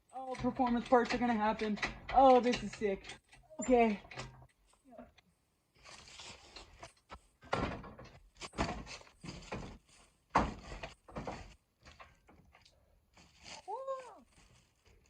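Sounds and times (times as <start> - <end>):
dull knocks and thumps: 7.1 - 12.5.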